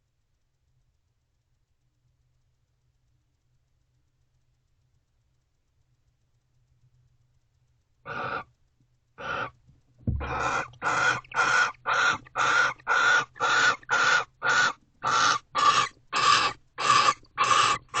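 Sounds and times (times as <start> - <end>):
barn owl screeching: 8.1 - 8.5, 9.2 - 9.6, 10.2 - 18.0
low thump: 10.0 - 10.4.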